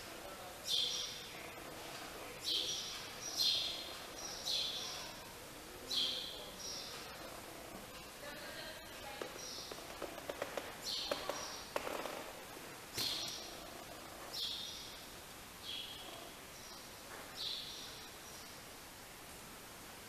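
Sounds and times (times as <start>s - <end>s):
bird chirping: 0.7s - 7.4s, 9.2s - 12.1s, 13.0s - 15.0s, 15.6s - 18.6s.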